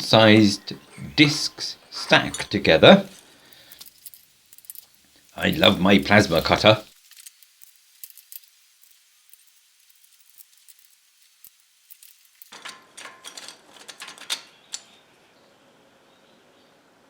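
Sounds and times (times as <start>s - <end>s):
faint hiss: 0.0s - 12.5s
metallic clinks of steel parts: 0.1s - 6.6s, 11.9s - 15.0s.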